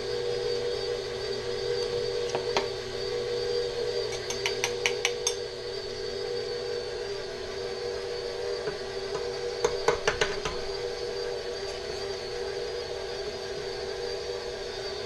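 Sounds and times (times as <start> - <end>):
electric mixer running: 0.0 - 15.0.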